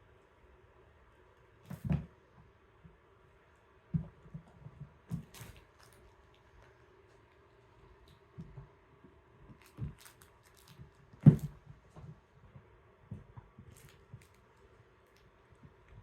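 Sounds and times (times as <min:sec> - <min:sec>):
kittens thumping and scuffling: 0:03.9 - 0:07.3, 0:09.5 - 0:14.4.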